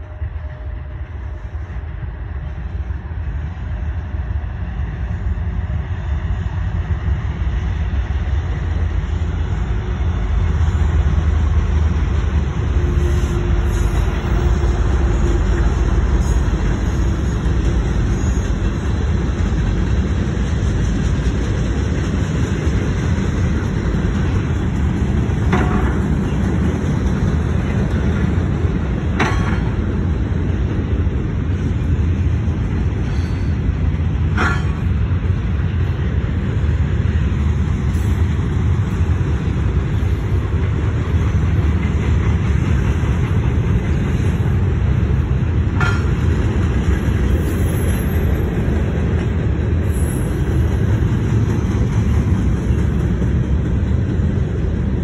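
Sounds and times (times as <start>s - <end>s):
train wheels rumbling on rail: 0.0s - 55.0s
sharp metallic clanks: 29.1s - 29.8s, 34.3s - 35.0s.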